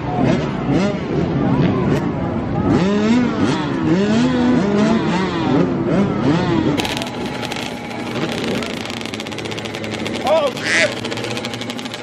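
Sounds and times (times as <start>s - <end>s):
dirt bike engines revving: 0.0s - 12.0s
rapid crackle of clicks: 6.8s - 12.0s.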